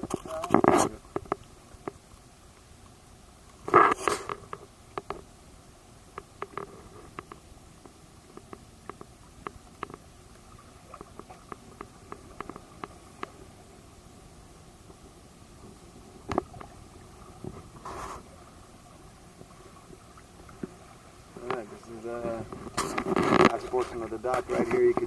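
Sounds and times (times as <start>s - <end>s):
faint steady underwater background: 0.0s - 25.0s
sharp underwater clicks: 6.1s - 10.1s, 10.9s - 13.4s.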